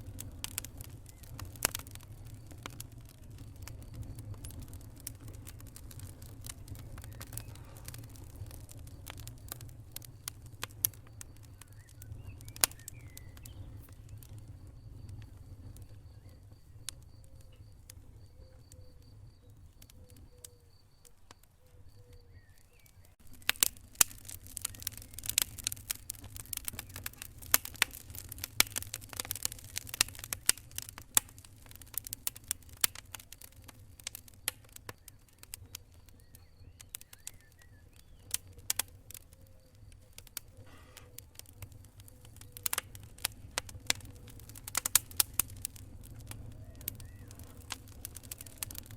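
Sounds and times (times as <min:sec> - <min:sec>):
fire crackling and popping: 0:00.0 - 0:48.9
low fire rumble: 0:00.0 - 0:48.9.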